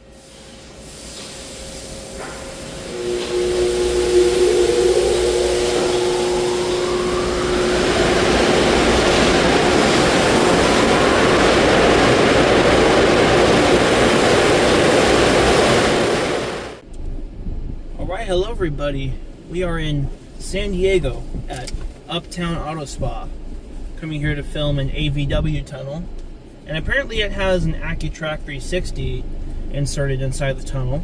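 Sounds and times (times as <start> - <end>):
dryer blowers whining: 0.0 - 16.8
loud rush of air: 0.0 - 16.8.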